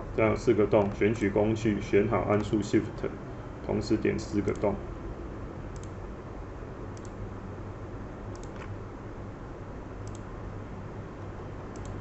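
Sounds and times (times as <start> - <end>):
steady hiss and low hum: 0.0 - 12.0
computer mouse clicking: 4.4 - 4.7, 5.7 - 6.0, 7.0 - 7.2, 8.3 - 8.8, 10.0 - 10.3, 11.7 - 12.0.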